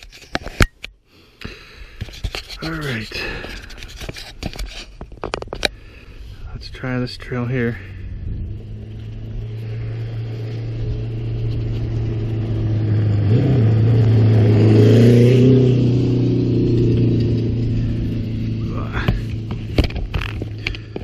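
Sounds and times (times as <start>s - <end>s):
dirt bike engine revving: 7.8s - 20.9s.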